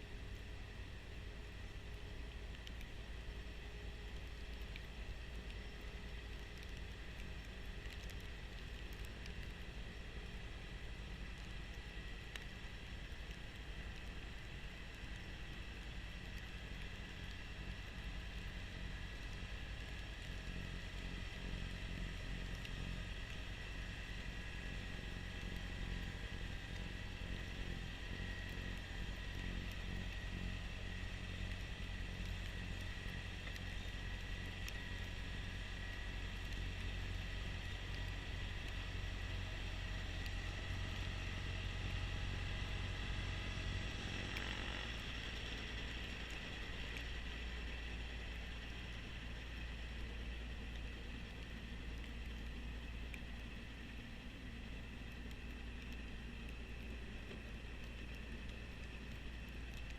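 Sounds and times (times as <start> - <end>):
tractor diesel engine drone: 0.0 - 59.9
snowblower high whine: 40.4 - 47.5.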